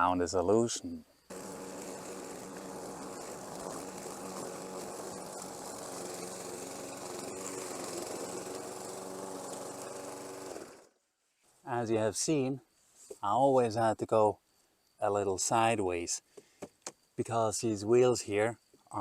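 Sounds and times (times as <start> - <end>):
lawn mower engine running: 1.3 - 10.9.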